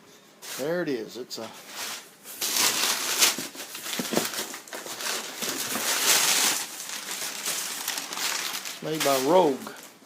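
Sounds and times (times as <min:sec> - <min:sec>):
packing paper crinkling: 0:01.6 - 0:10.0.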